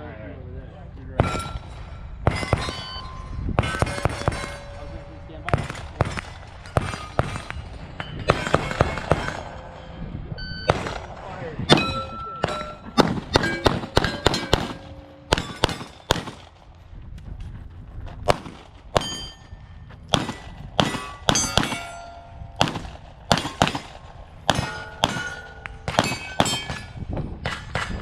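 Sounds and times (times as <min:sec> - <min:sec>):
steel targets clanging: 0:01.2 - 0:16.4, 0:18.9 - 0:22.6, 0:23.3 - 0:28.0
pistol shots: 0:03.6 - 0:04.8, 0:05.5 - 0:09.7, 0:10.7 - 0:16.6, 0:20.1 - 0:28.0.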